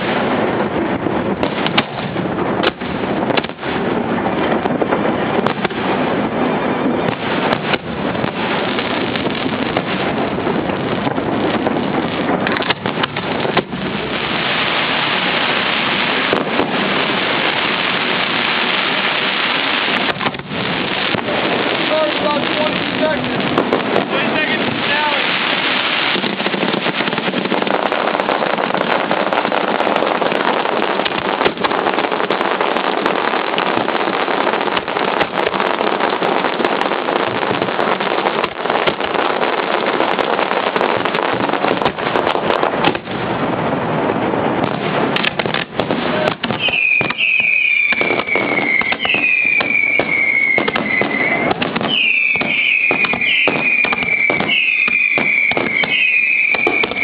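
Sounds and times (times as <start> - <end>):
fireworks bangs and crackling: 0.0 - 57.0
fireworks whistles falling in pitch: 45.5 - 57.0.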